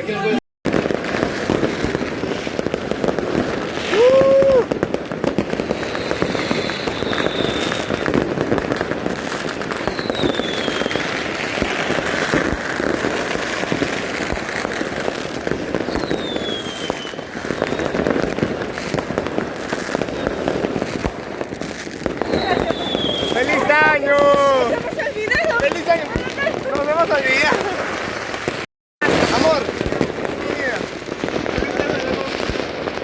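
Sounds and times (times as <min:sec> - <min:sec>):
fireworks crackling and banging: 0:00.0 - 0:33.0
firework whistles sliding downward: 0:03.7 - 0:08.3, 0:09.4 - 0:13.8, 0:15.8 - 0:18.3, 0:21.9 - 0:25.9.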